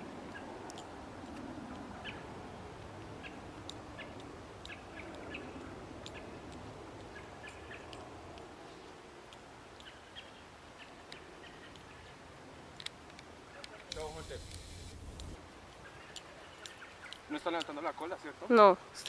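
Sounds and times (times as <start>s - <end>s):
birds chirping: 1.9s - 8.1s, 9.8s - 12.3s, 13.5s - 17.8s
light ticks: 2.8s - 8.5s, 9.3s - 10.0s.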